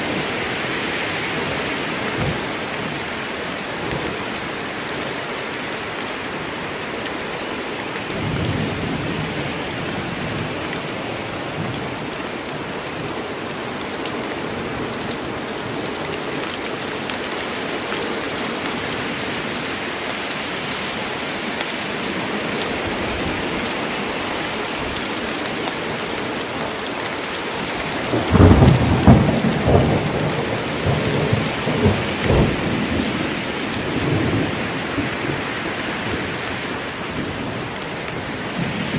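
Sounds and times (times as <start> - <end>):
steady rain: 0.0 - 38.9
thunder rumbling: 27.9 - 36.3.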